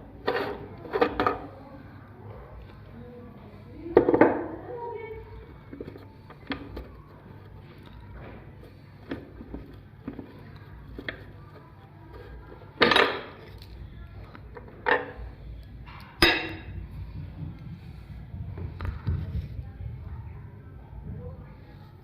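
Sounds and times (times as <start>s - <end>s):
metallic clanks: 15.8s - 16.8s.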